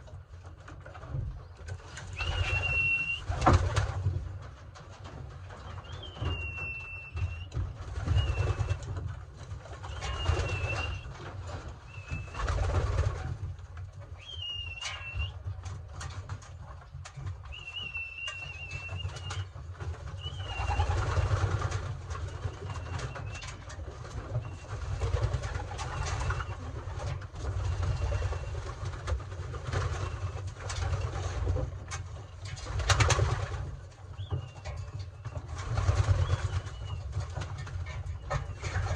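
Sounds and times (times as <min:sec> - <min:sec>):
short high whistles: 0:02.2 - 0:03.2, 0:14.2 - 0:15.3
pigeons cooing: 0:09.8 - 0:11.2, 0:20.1 - 0:28.8.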